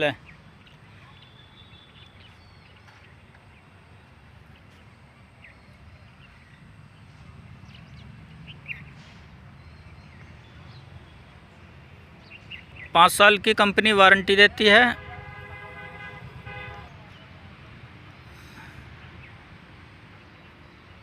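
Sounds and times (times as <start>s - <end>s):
bird chirps: 0.1s - 13.1s.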